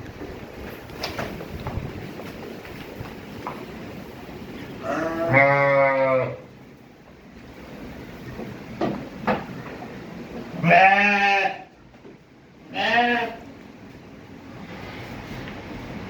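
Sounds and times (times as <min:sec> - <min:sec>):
sheep bleating: 0:04.8 - 0:06.5, 0:10.6 - 0:11.7, 0:12.7 - 0:13.4.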